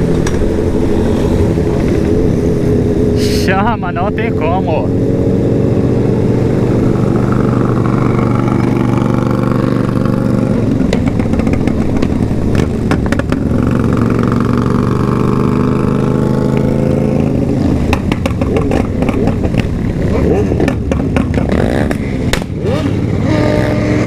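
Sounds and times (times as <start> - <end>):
motorcycle engine running: 0.0 - 24.0
exhaust crackling pops: 10.7 - 14.1, 17.8 - 22.6.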